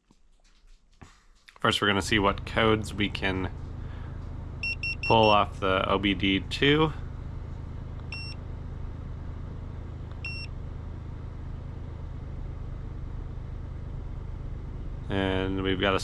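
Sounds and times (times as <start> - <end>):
steady low hum: 0.1 - 16.0
short electronic beeps: 4.6 - 5.4, 8.1 - 8.4, 10.2 - 10.5.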